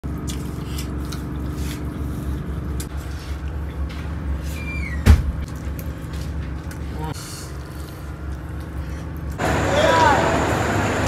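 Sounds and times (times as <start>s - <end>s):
train idling rumble: 9.4s - 11.0s.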